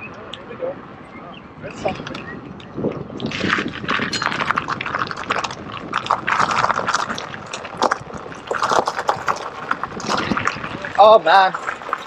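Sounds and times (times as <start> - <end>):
crackling and splashing: 1.9 - 12.0
tyres rolling through mud: 3.0 - 12.0.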